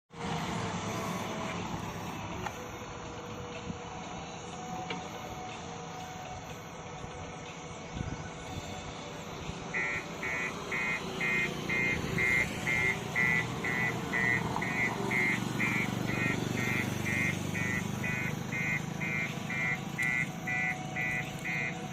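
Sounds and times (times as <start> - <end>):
construction machine engine: 0.1 - 21.9
electronic warning beeper: 0.8 - 3.4, 9.7 - 21.9.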